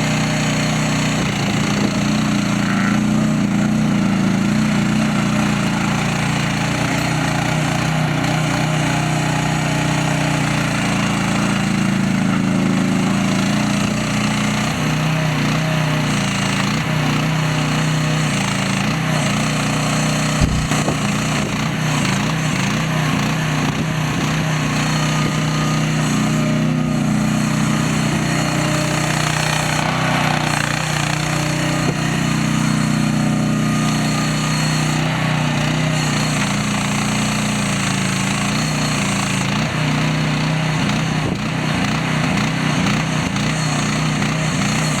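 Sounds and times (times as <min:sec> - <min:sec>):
small excavator engine running: 0:00.0 - 0:45.0.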